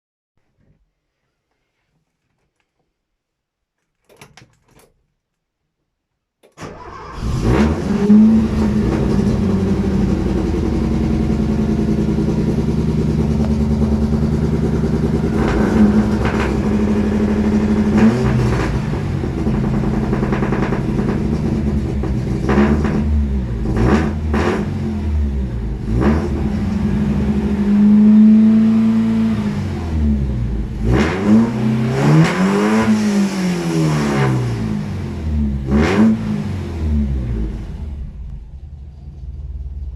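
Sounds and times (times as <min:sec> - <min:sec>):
car engine cranking and starting: 0:06.4 - 0:39.9
car engine revving: 0:06.6 - 0:39.9
car engine idling: 0:08.0 - 0:23.8, 0:37.0 - 0:39.9.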